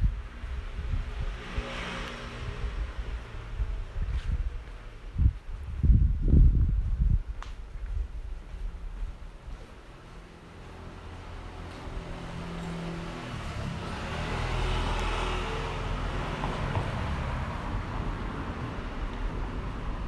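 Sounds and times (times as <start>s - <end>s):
car passing: 0.1s - 4.0s, 9.5s - 20.0s.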